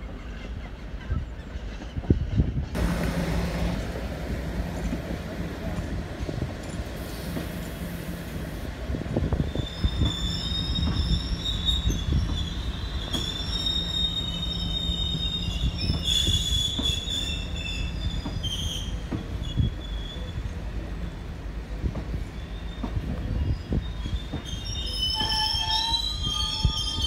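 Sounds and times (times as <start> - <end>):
freight train rumble: 0.0 - 27.0
wagon wheels squealing: 9.4 - 20.4, 22.4 - 27.0.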